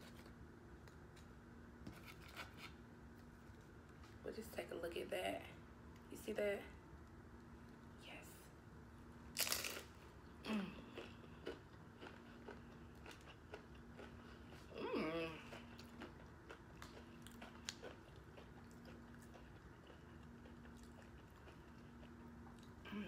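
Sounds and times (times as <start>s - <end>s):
crunchy biting and chewing: 9.4s - 10.0s, 10.8s - 14.8s, 15.4s - 22.8s.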